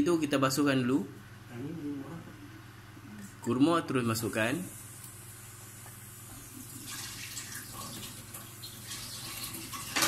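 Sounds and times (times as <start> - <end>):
tap water running into sink: 6.5 - 10.0.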